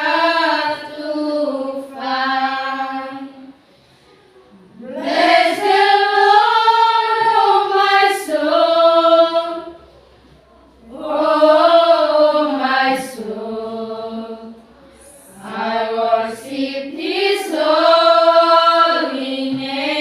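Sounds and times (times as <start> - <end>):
group singing unaccompanied: 0.0 - 3.6, 4.5 - 9.9, 10.8 - 20.0.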